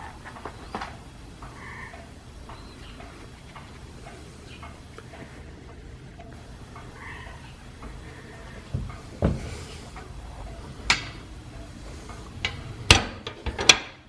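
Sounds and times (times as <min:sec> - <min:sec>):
low steady rumble: 0:00.0 - 0:13.7
fire knocking and cracking: 0:07.7 - 0:11.4, 0:12.0 - 0:14.0.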